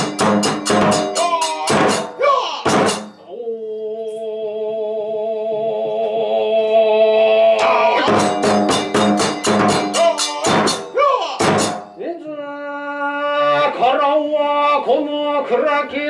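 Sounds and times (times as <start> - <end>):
drum and cymbal strikes: 0.0 - 3.2, 7.6 - 12.0.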